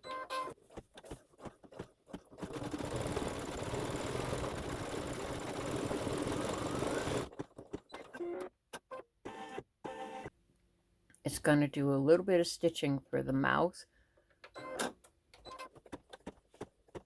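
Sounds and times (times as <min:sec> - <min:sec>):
embroidery machine stitching: 0:00.3 - 0:08.5.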